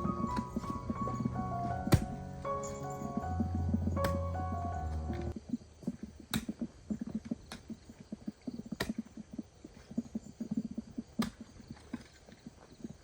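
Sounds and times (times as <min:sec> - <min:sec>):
sharp knocks: 0:00.0 - 0:04.5.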